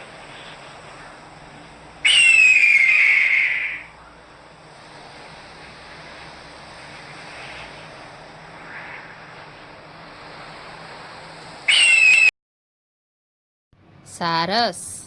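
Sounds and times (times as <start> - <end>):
background hiss: 0.0 - 12.3
hawk screaming: 2.0 - 4.0, 11.7 - 12.3.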